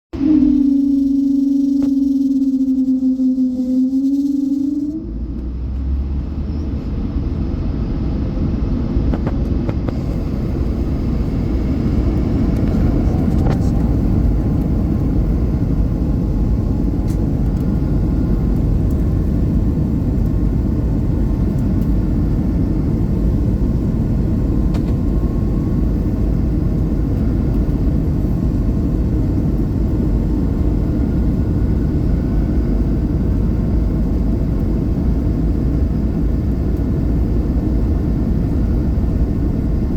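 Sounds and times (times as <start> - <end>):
airplane engines rumbling: 0.0 - 39.9.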